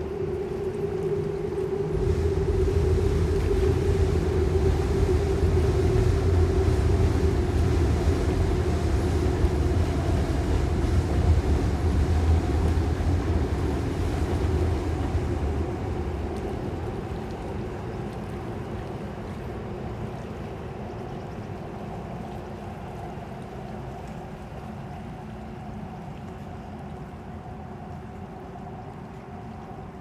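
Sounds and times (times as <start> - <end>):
low vehicle rumble: 1.9 - 18.0.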